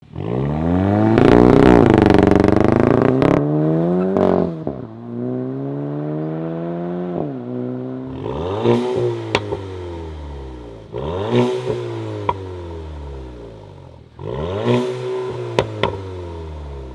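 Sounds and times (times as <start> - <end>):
car engine revving: 0.0 - 16.9
exhaust pops: 1.1 - 4.3, 8.1 - 12.7, 14.2 - 16.9.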